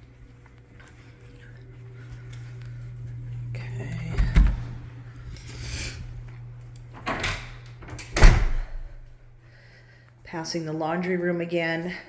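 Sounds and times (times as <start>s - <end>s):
door thumping shut: 7.1s - 9.0s.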